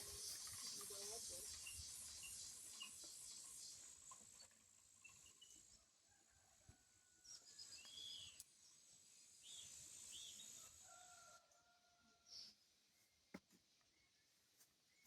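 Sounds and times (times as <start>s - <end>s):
bird chirps: 0.0s - 5.7s, 7.4s - 8.4s
high-pitched insect drone: 0.0s - 5.8s.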